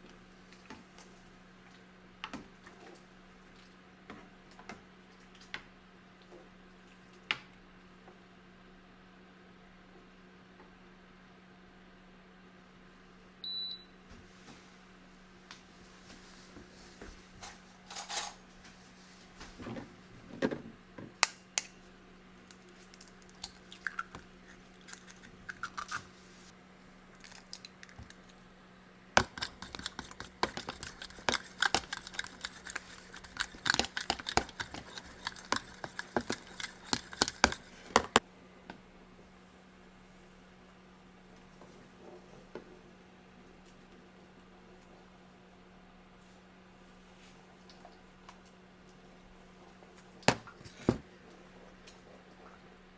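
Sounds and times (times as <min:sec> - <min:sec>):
utensils and dishes clinking: 0:17.4 - 0:18.4.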